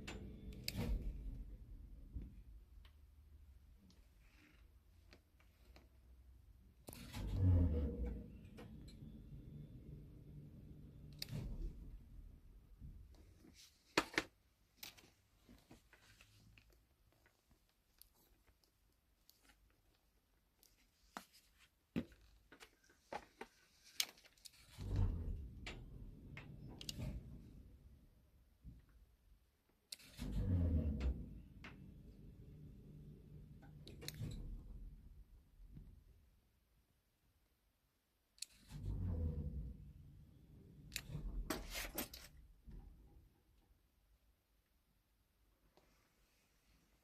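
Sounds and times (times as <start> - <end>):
low elevator rumble: 7.0 - 13.2, 24.8 - 28.2, 30.2 - 35.4, 38.7 - 41.5.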